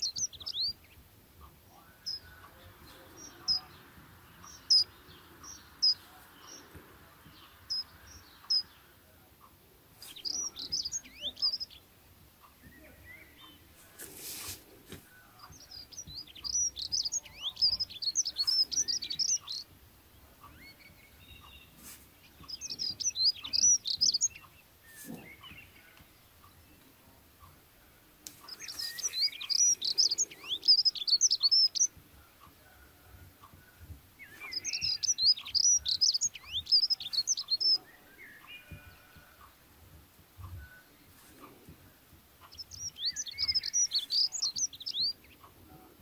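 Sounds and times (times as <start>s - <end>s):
small bird twittering: 0.0s - 1.0s, 1.8s - 6.7s, 7.3s - 8.8s, 9.9s - 13.7s, 15.3s - 19.7s, 20.4s - 26.7s, 28.4s - 32.0s, 34.2s - 39.5s, 42.4s - 45.5s.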